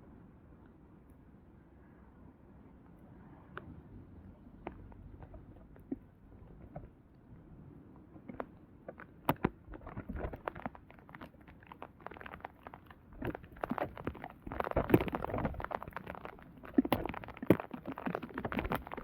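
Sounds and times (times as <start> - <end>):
raindrops pattering: 8.3 - 19.0.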